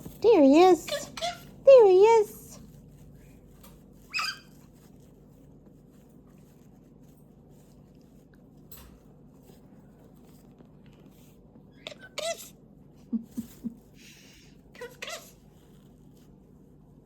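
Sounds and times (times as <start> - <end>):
cockatoo chirp: 4.1 - 4.5.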